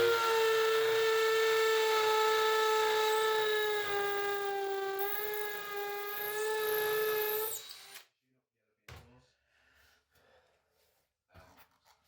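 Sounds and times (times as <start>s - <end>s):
power tool motor whining: 0.0s - 8.0s.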